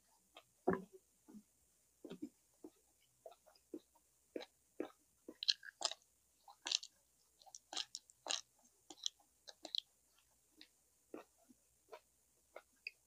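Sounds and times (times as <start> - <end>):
person chewing food: 2.0 - 13.0.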